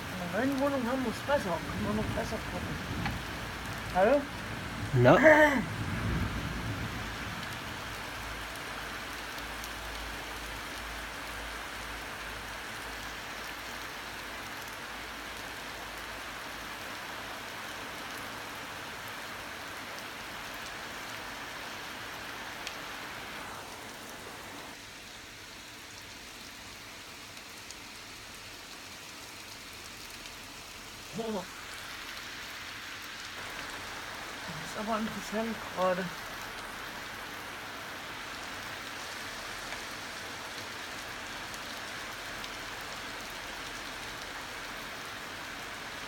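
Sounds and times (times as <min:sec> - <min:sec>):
heavy rain falling: 0:00.0 - 0:46.0
low thunder rumble: 0:01.1 - 0:05.0, 0:05.6 - 0:07.9.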